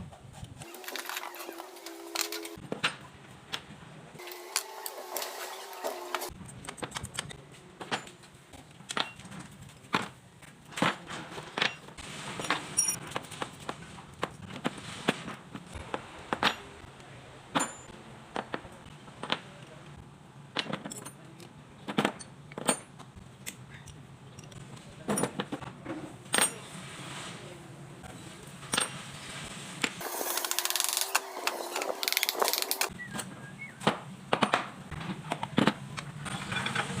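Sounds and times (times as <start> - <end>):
metal tools clinking: 11.6 - 13.0, 30.2 - 32.9.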